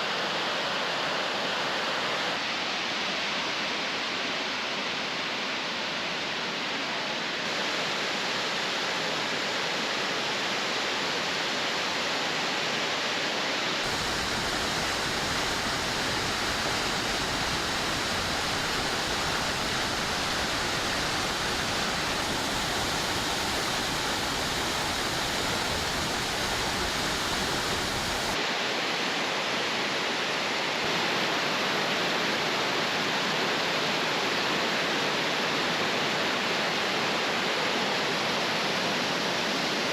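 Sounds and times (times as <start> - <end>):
waterfall rushing: 13.8 - 29.2.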